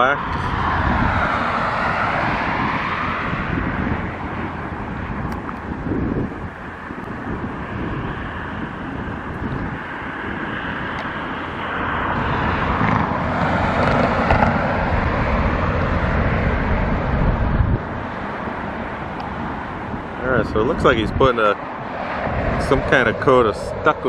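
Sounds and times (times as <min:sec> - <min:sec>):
vehicle traffic rumble: 0:00.0 - 0:24.0.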